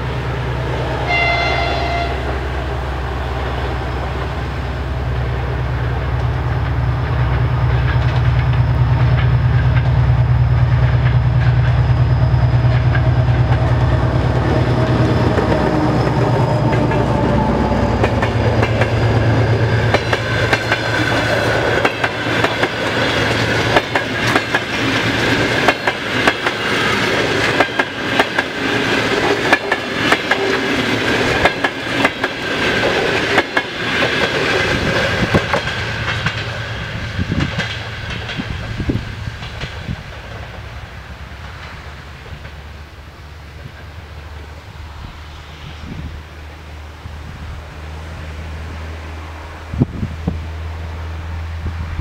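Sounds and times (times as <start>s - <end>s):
diesel locomotive passing: 0.0s - 52.0s
wheels clacking over rail joints: 3.4s - 44.4s.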